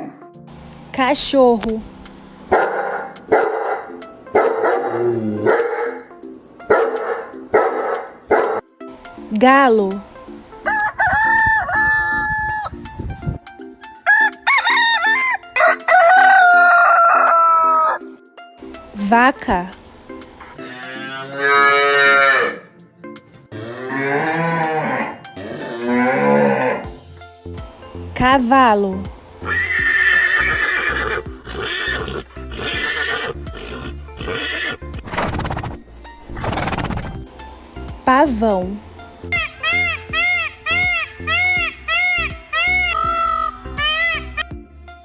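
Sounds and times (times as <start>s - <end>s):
light background music: 0.0s - 45.0s
horse neighing: 4.8s - 5.9s, 20.5s - 22.7s, 23.5s - 26.9s, 29.4s - 35.0s, 39.3s - 44.5s
rooster crowing: 10.6s - 12.8s, 14.0s - 18.2s, 20.6s - 22.7s, 39.3s - 44.5s.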